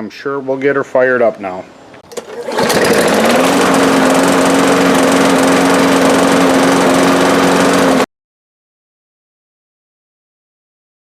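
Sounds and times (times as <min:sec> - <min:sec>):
lawn mower engine running: 0:02.0 - 0:08.1.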